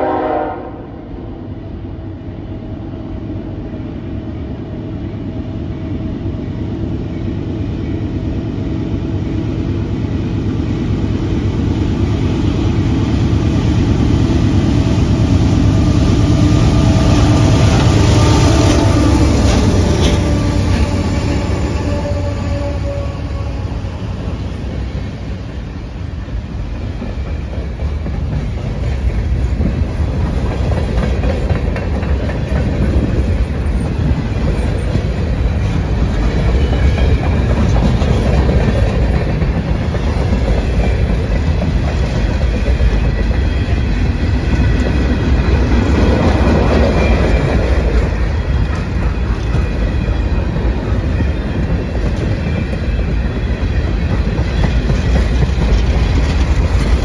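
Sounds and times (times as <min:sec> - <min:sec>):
train wheels rumbling on rails: 0:00.0 - 0:57.0
clickety-clack over rail joints: 0:12.7 - 0:57.0.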